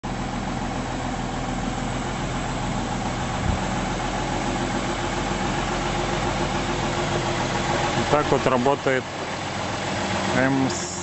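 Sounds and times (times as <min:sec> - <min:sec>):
car engine idling: 0:00.0 - 0:11.0
low thump: 0:03.4 - 0:03.7.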